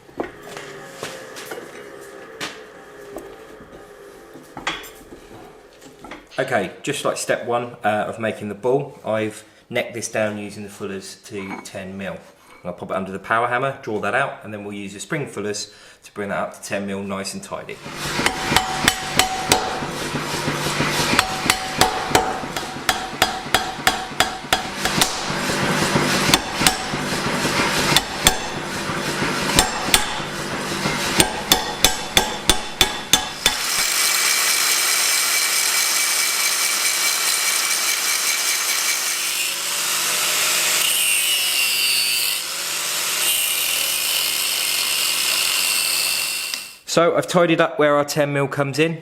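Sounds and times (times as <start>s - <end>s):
power tool grinding: 17.8s - 46.8s
hammer blows on hot steel: 18.0s - 33.6s.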